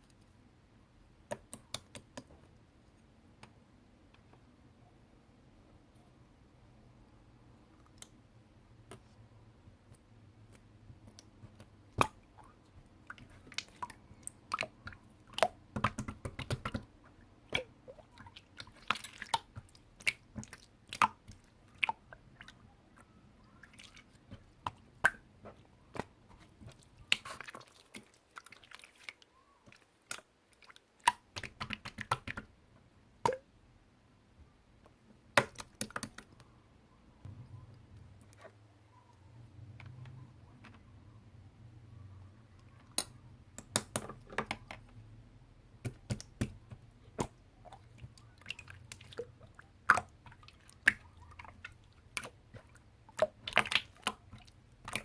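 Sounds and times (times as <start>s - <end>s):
slime squished by hand: 45.8s - 55.0s.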